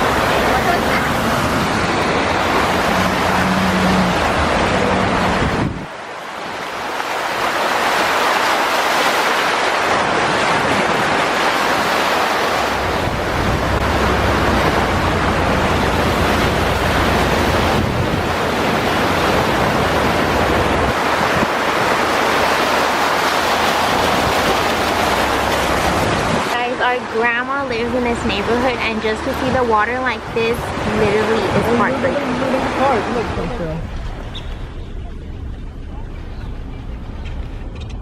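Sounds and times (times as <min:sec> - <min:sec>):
water spray rushing around car: 0:00.0 - 0:26.8
low rumble: 0:33.0 - 0:38.0.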